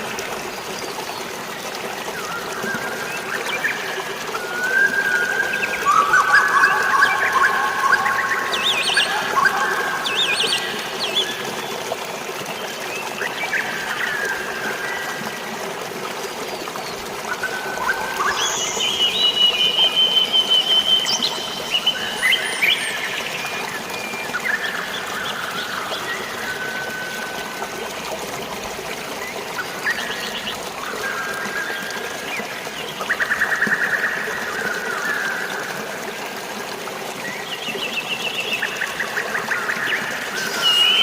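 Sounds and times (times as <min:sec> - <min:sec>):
water trickling and splashing: 0:00.0 - 0:41.0
birds calling and whistling: 0:02.1 - 0:11.8, 0:16.5 - 0:27.2, 0:37.3 - 0:41.0.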